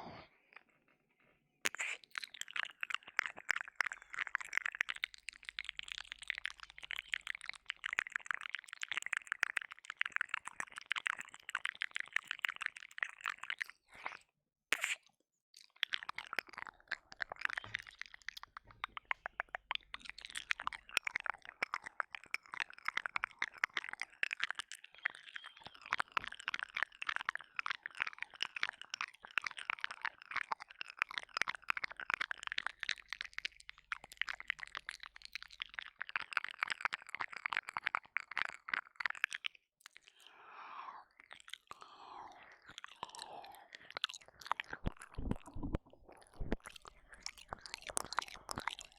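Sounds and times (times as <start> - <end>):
soft breathing: 0.0 - 1.4, 40.1 - 44.8
wet mouth clicks and smacks: 1.6 - 48.9.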